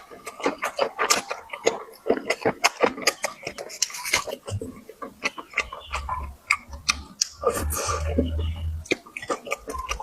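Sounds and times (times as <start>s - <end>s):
chewing and utensil clicks: 0.0s - 10.0s
low rumble: 7.4s - 8.9s.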